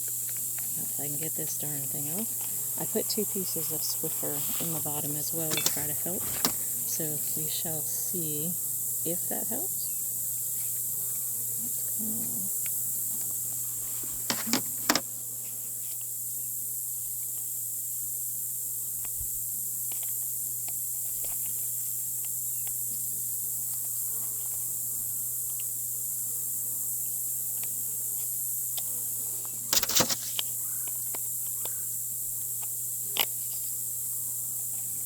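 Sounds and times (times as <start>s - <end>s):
bees droning: 0.0s - 15.8s, 22.5s - 35.0s
honeybees buzzing: 0.0s - 35.0s
knocks of hive parts: 5.4s - 6.7s, 14.0s - 15.1s, 29.7s - 30.4s.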